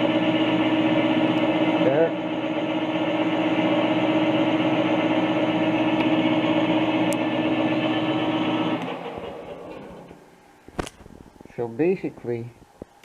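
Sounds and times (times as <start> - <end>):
metal lathe gear whine: 0.0 - 10.2.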